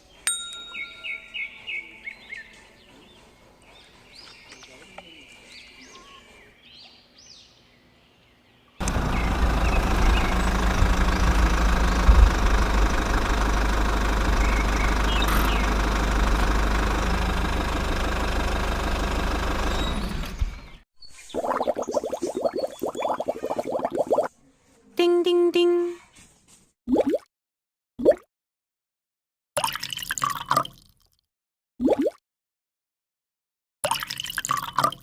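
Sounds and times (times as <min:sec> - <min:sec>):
small engine running: 0:08.8 - 0:20.8.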